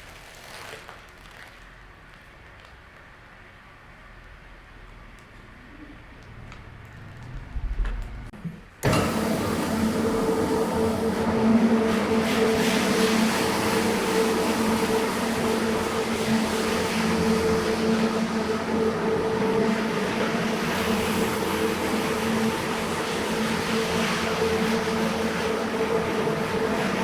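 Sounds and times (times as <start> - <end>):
cleaning machine motor humming: 8.8 - 27.0.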